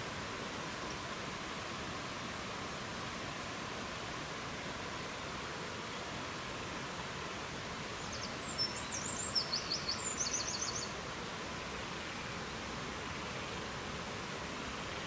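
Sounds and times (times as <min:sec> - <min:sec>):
songbird singing trill: 0:08.0 - 0:11.0.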